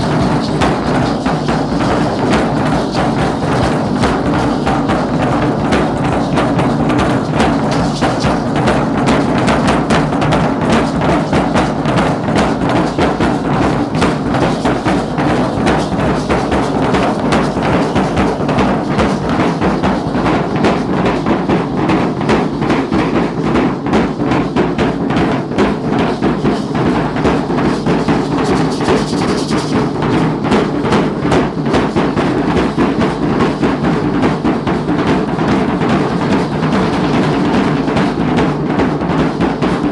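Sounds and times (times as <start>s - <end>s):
drums beating rapid rhythm: 0.0s - 39.9s.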